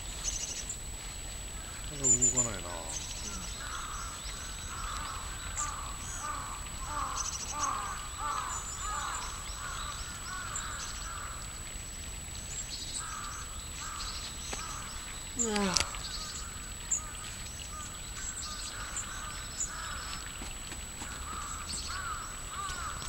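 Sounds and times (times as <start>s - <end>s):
birds harsh calls: 1.6s - 11.5s, 12.8s - 23.0s
thin high bird chirps: 14.0s - 16.5s.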